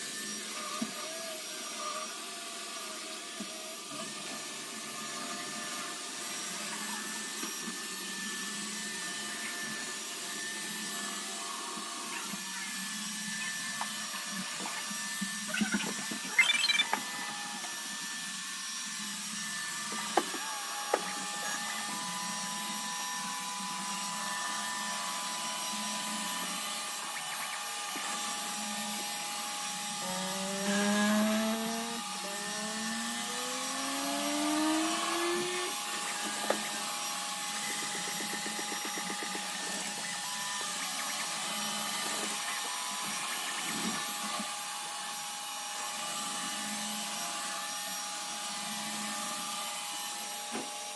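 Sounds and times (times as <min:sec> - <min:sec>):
robot vacuum whirring: 0:00.0 - 0:50.9
rising whines: 0:15.4 - 0:17.6, 0:26.4 - 0:44.5.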